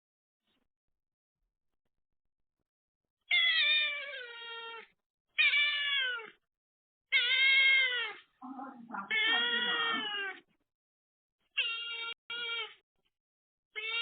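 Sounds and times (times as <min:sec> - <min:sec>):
cat meowing: 0:03.3 - 0:06.4, 0:07.1 - 0:08.2, 0:08.9 - 0:10.4, 0:11.5 - 0:12.8, 0:13.7 - 0:14.0.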